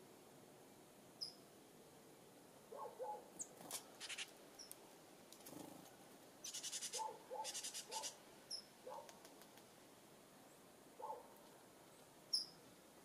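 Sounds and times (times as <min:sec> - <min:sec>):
birds chirping: 0:02.7 - 0:04.8, 0:06.4 - 0:09.2
bird chattering trills: 0:03.4 - 0:04.3, 0:06.4 - 0:08.7.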